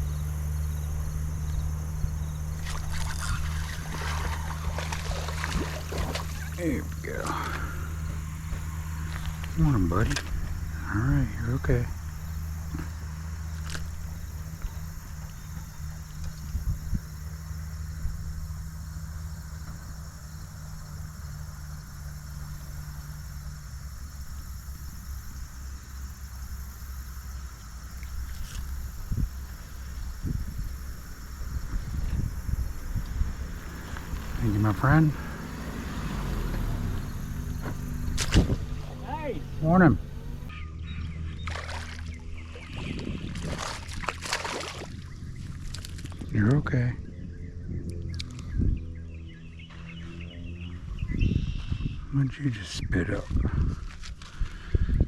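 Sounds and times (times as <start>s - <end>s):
insects trilling: 0.0s - 55.0s
low engine hum: 0.0s - 55.0s
water splashing: 2.4s - 10.2s, 33.3s - 40.5s, 41.4s - 46.2s.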